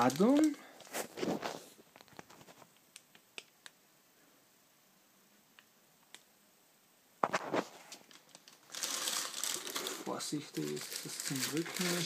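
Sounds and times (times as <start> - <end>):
faint clicks and taps: 1.9 - 3.8.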